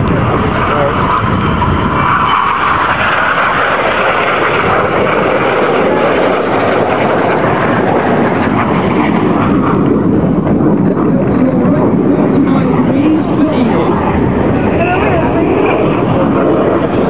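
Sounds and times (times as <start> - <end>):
jets flying past: 0.0 - 17.0.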